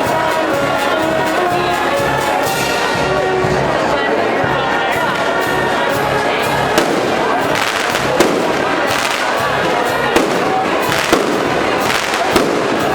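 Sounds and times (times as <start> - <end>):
continuous fireworks din: 0.0 - 12.9
fireworks bangs: 6.1 - 12.9.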